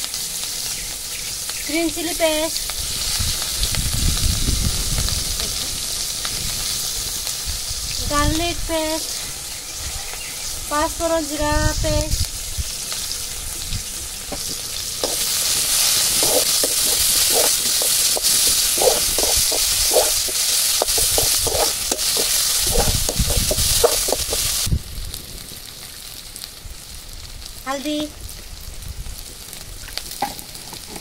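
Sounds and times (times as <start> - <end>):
food sizzling in hot oil: 0.0 - 31.0
spatula scraping a pan: 14.4 - 24.7.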